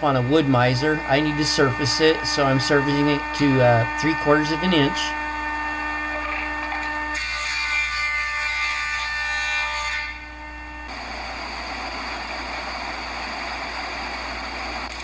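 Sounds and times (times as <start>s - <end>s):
thickness planer whine: 0.0s - 15.0s
rushing machine noise: 10.9s - 15.0s.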